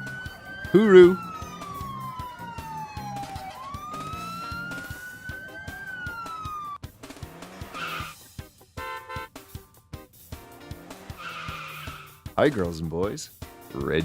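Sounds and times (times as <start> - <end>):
fire truck siren wailing: 0.0 - 8.2, 11.1 - 12.2
background music with beat: 0.0 - 14.0.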